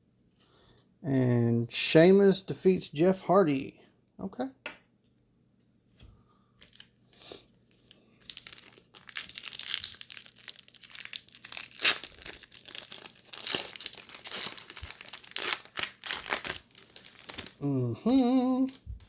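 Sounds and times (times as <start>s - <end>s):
plastic wrapper crinkling and tearing: 6.6s - 19.0s.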